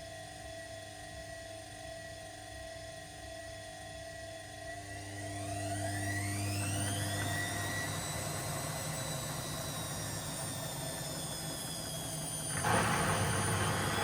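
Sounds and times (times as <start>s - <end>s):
washing machine spinning: 4.8s - 14.0s.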